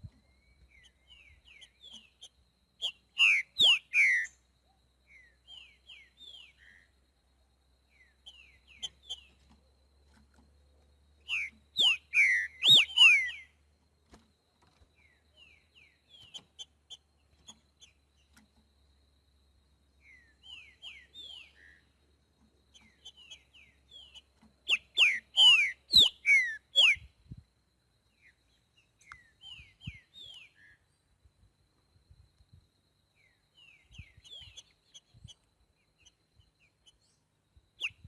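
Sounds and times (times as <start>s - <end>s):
bird singing whistled notes: 0.0s - 7.0s, 7.9s - 9.6s, 11.2s - 13.6s, 15.0s - 18.4s, 20.0s - 21.9s, 22.7s - 27.4s, 28.1s - 31.0s, 33.1s - 38.0s.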